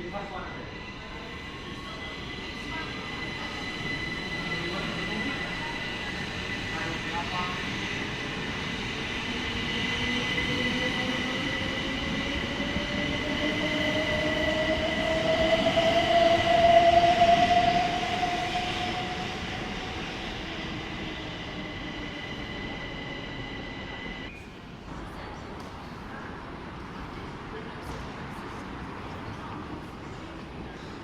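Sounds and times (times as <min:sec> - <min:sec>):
steady high tone: 0:12.4 - 0:24.3.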